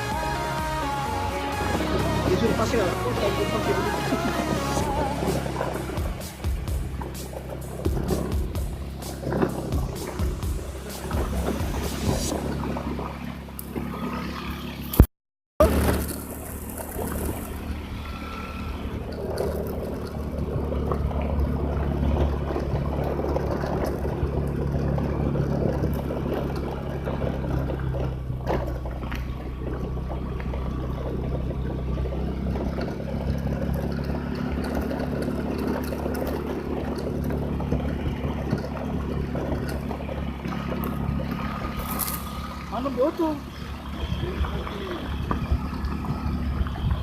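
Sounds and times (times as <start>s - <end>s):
vehicle engine droning: 0.0s - 47.0s.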